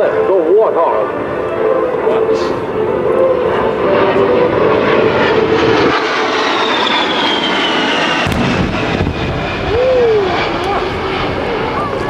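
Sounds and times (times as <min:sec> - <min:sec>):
jet engines roaring past: 0:00.0 - 0:12.0
deep rumble: 0:01.1 - 0:12.0
pyrotechnic blast: 0:06.5 - 0:11.2.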